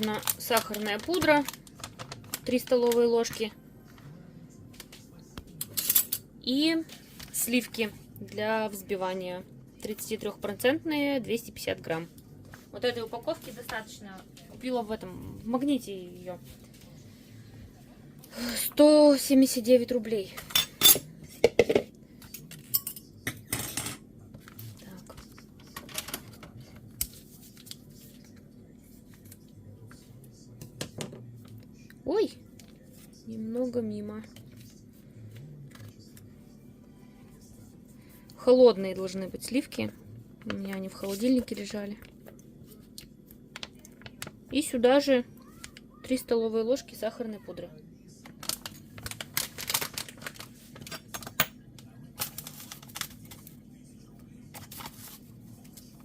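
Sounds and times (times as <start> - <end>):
packaging clicks and rustles: 0.0 - 3.4, 48.2 - 51.4, 52.2 - 53.5
low steady hum: 0.0 - 56.0.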